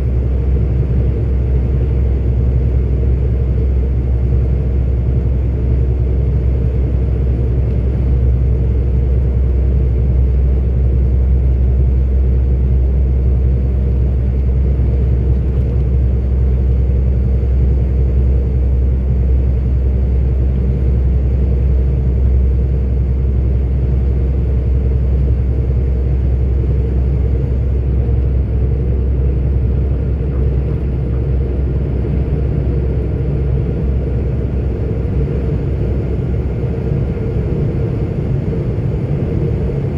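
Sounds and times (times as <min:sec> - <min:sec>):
lorry engine and tyres droning: 0:00.0 - 0:39.9.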